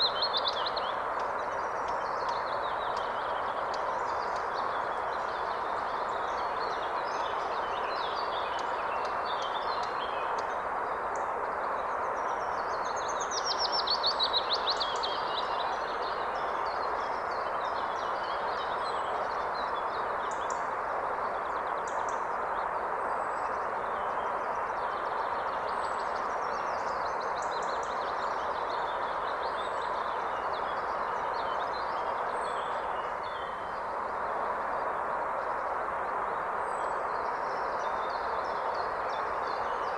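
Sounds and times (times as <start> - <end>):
songbirds singing: 0.0 - 20.7.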